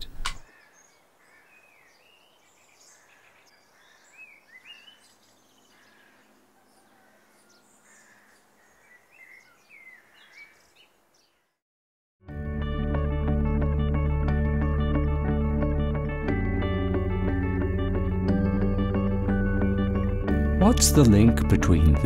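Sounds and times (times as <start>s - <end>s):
birds chirping and whistling: 0.4s - 11.4s.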